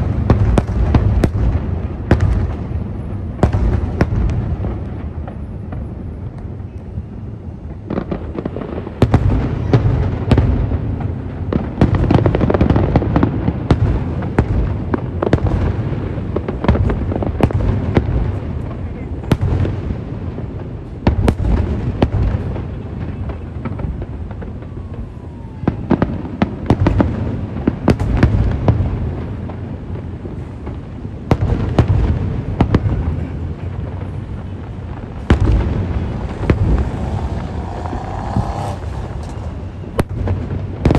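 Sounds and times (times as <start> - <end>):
deep firework booms: 0.0 - 6.3, 7.7 - 40.9
firework cracks: 7.7 - 40.9
falling firework whistle: 24.0 - 27.0, 35.2 - 40.9.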